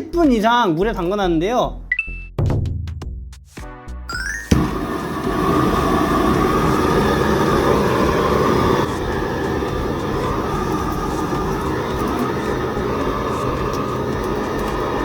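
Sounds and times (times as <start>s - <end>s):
gas torch lighting pop: 4.5s - 15.0s
torch flame rushing: 4.5s - 15.0s.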